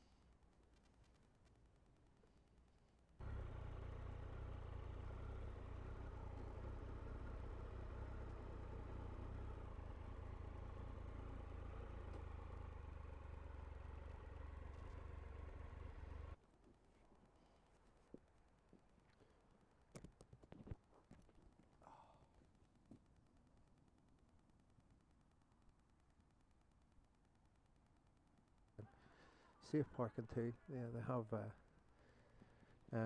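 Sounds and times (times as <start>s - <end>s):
motorcycle engine at low revs: 3.2s - 16.4s.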